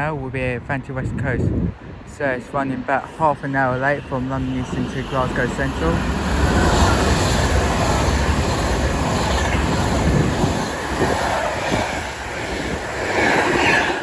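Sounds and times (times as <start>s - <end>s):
train wheels rumbling on rail: 3.0s - 14.0s.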